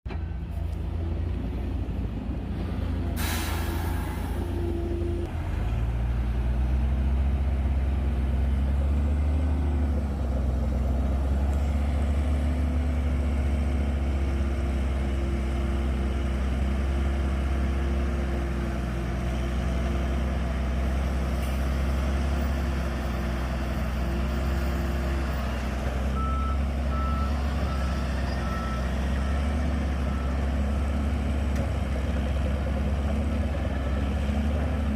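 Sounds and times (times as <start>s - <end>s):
bulldozer diesel engine running: 0.1s - 34.9s
short hiss: 3.2s - 4.5s
reversing alarm beeping: 26.2s - 30.4s.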